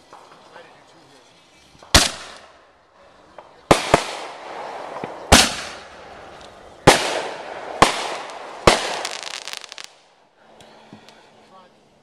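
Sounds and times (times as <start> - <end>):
crackling firework pops: 0.0 - 0.6, 1.8 - 2.6, 3.3 - 10.1
firework booms: 1.8 - 2.5, 3.3 - 9.9.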